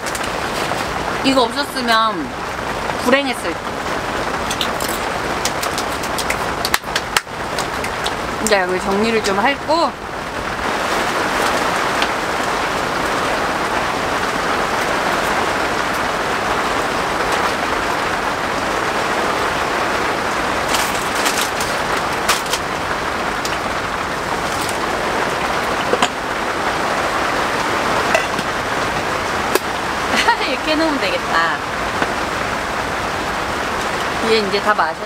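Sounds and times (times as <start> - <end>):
rain pattering on a tent: 0.0 - 35.0
sharp clicks and rustles: 20.6 - 22.8, 23.4 - 26.2.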